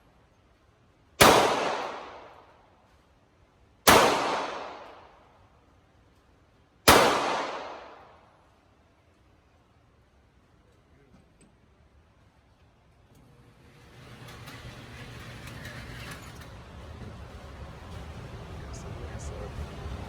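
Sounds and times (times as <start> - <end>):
pistol shots echoing: 1.2 - 2.4, 3.9 - 5.2, 6.9 - 8.2.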